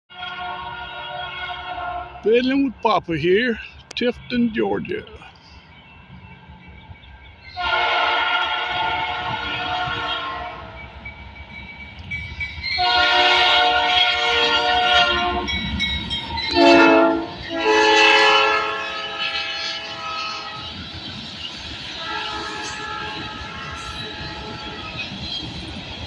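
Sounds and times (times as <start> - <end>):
locomotive air horn blasts: 0.1 - 2.2, 7.6 - 10.7, 12.8 - 15.5, 16.5 - 20.7, 22.0 - 24.9
passing train rumbling: 0.1 - 26.0.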